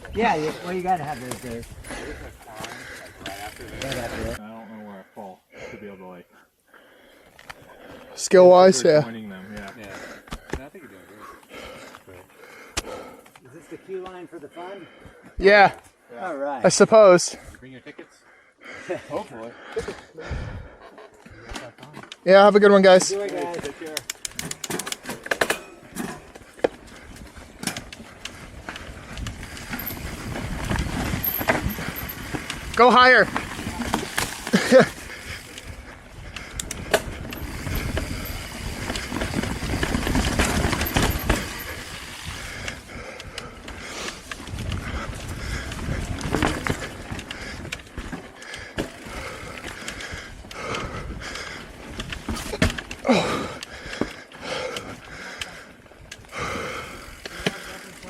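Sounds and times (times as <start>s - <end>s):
wind: 0.0s - 58.0s
tyres rumbling: 22.8s - 58.0s
bike clicks and knocks: 23.0s - 50.8s, 51.4s - 56.3s.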